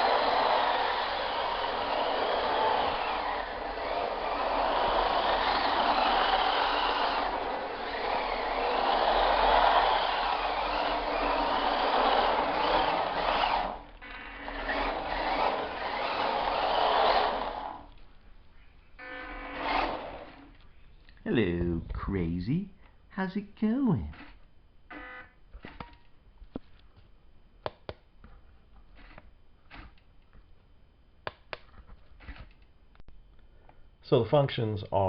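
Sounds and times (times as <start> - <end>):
small electric motor whining: 0.0 - 17.9, 19.0 - 20.6.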